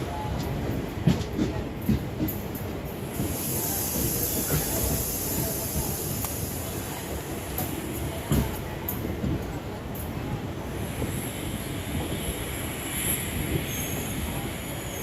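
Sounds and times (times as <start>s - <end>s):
passenger train on track: 0.0s - 15.0s
high hiss: 3.2s - 7.8s.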